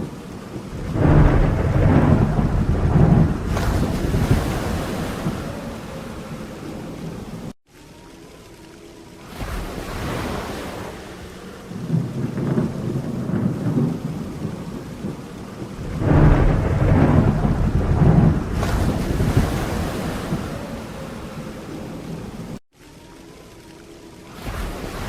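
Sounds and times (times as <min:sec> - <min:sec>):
thunder rolling: 0:00.0 - 0:07.5, 0:11.7 - 0:22.6
steady rain: 0:00.0 - 0:25.0.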